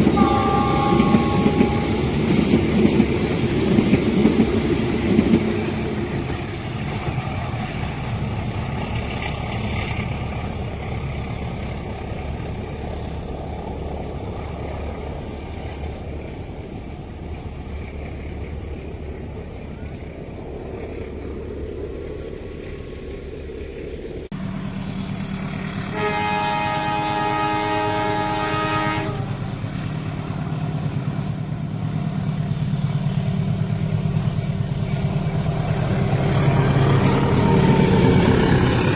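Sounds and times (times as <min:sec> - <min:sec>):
multi-tone train horn blast: 0:00.0 - 0:02.6, 0:25.7 - 0:29.6, 0:36.5 - 0:38.4
locomotive engine humming: 0:00.0 - 0:38.9
train cars rumbling on track: 0:00.0 - 0:38.9.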